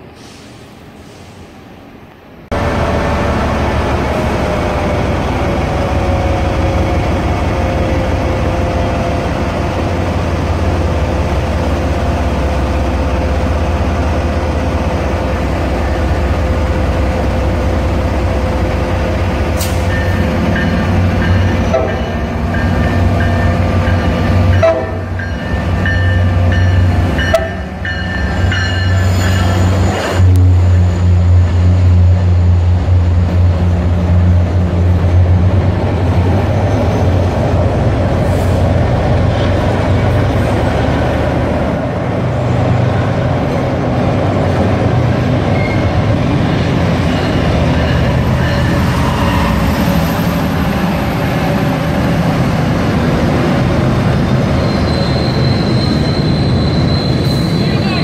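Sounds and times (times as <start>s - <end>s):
train whine: 0.0s - 58.0s
train brakes squealing: 19.5s - 32.4s, 45.4s - 52.4s, 54.1s - 58.0s.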